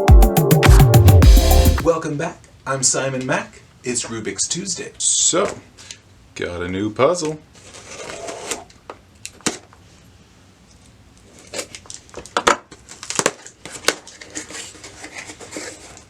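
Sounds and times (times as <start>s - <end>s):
packaging crinkling and tearing: 11.2s - 16.0s.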